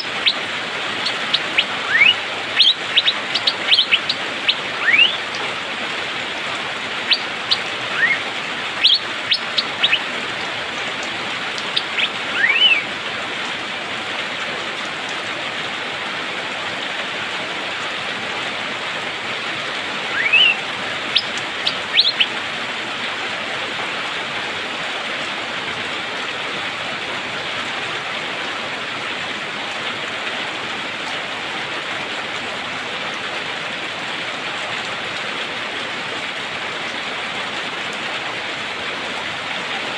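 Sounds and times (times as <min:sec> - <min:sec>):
bird whistled calls: 0:00.0 - 0:05.4, 0:07.1 - 0:10.1, 0:11.7 - 0:12.8, 0:20.1 - 0:22.3
rain hissing: 0:00.0 - 0:39.9.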